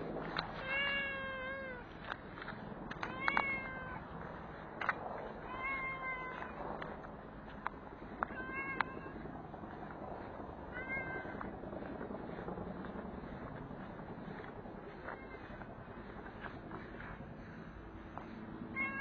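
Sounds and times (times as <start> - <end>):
cat meowing: 0.6 - 1.9, 3.0 - 4.0, 5.5 - 6.6, 8.3 - 9.2, 10.7 - 11.4, 18.8 - 19.0.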